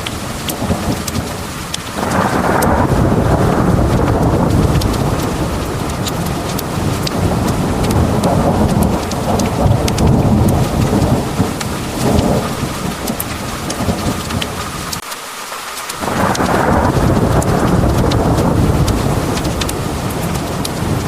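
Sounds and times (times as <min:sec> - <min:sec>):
pouring rain: 0:00.0 - 0:21.0
rumble of thunder: 0:00.5 - 0:14.9, 0:16.0 - 0:21.0.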